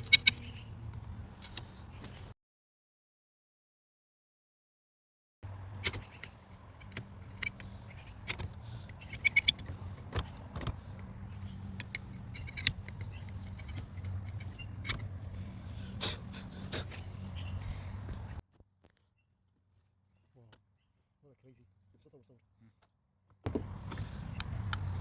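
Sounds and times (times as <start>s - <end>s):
hand tools and metal parts clinking: 0.0s - 0.6s, 5.5s - 16.9s.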